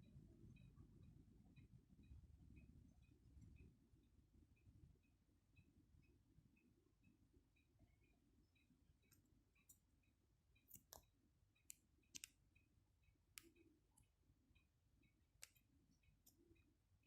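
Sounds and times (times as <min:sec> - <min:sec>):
faint ticking: 0:00.0 - 0:17.0
faint sharp clicks and taps: 0:08.6 - 0:12.7, 0:13.3 - 0:16.7.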